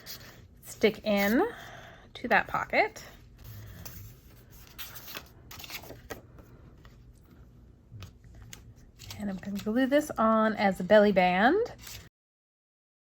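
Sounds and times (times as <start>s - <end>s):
paper rustling: 3.2s - 7.4s, 8.0s - 10.2s, 11.8s - 12.1s.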